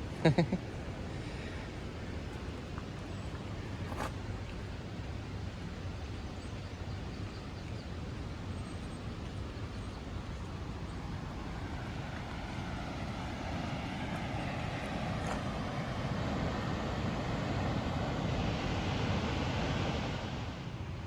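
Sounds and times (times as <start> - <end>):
waterfall roaring: 10.9 - 20.3.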